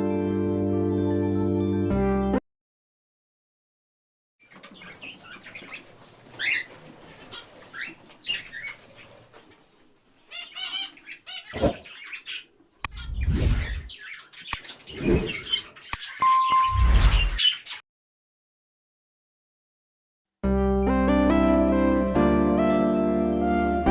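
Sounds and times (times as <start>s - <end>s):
bird chirps: 4.4s - 17.8s
rustling bursts: 5.0s - 10.2s.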